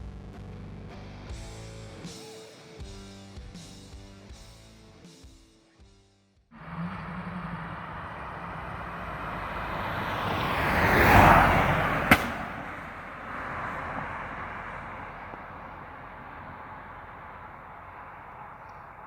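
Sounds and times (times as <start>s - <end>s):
car driving past: 6.6s - 19.0s
sharp crack: 8.3s - 13.0s.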